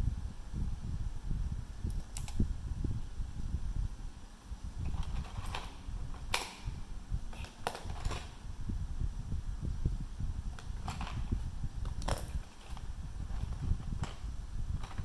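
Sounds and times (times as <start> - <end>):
handling noise rumble: 4.5 - 15.0
small tools clicking and tapping: 10.6 - 14.2, 14.8 - 15.0.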